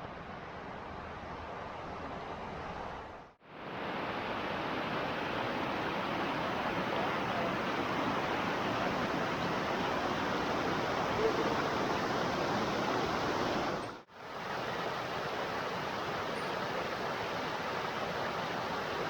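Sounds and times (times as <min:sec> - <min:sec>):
waterfall roaring: 0:03.6 - 0:19.0.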